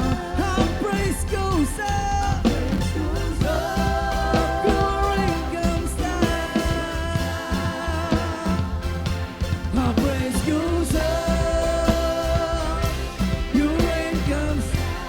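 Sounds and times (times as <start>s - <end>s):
worship band music: 0.0s - 15.0s.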